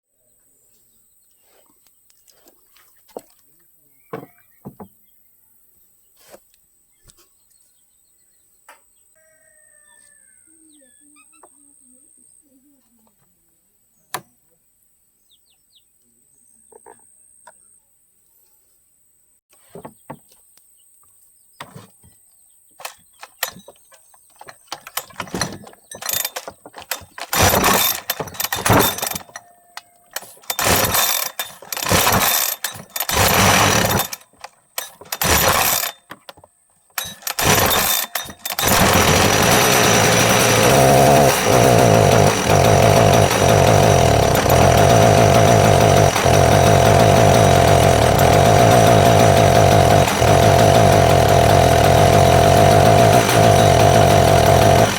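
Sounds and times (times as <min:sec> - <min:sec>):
chainsaw starting and running: 0:24.8 - 0:29.4, 0:30.1 - 0:36.0, 0:37.0 - 0:54.9.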